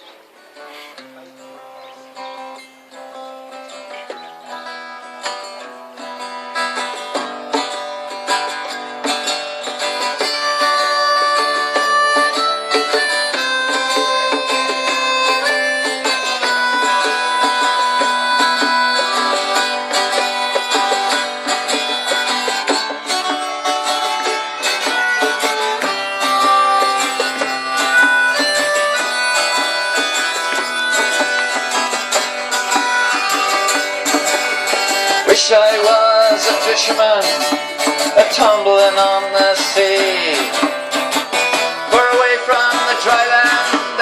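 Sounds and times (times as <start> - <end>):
acoustic folk group playing: 0.0 - 44.0
plucked and strummed strings: 0.0 - 44.0
long held melody notes: 10.0 - 37.1.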